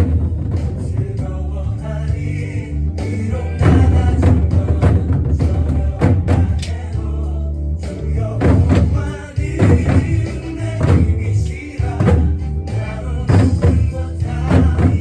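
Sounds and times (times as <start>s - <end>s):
drum hits with sticks: 0.0s - 1.2s, 3.6s - 6.7s, 8.4s - 11.2s, 12.0s - 12.5s, 13.3s - 15.0s
bass-heavy backing music: 0.0s - 15.0s
worship song vocals: 0.0s - 15.0s.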